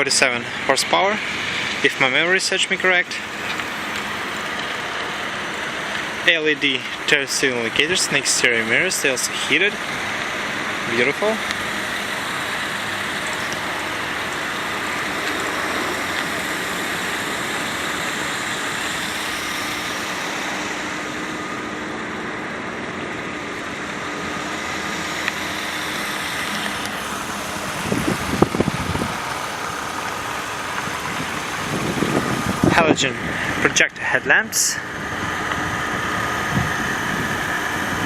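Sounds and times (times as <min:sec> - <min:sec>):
car engine idling: 0:00.0 - 0:38.0.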